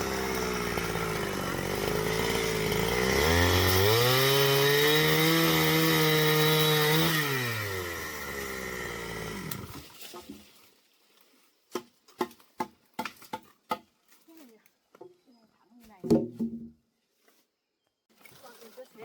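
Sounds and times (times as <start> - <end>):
chainsaw revving: 0.0 - 9.8.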